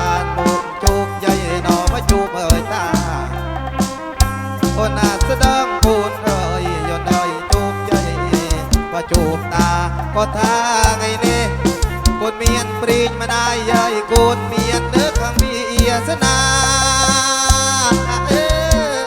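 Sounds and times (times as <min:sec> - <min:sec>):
band playing through loud speakers: 0:00.0 - 0:19.0.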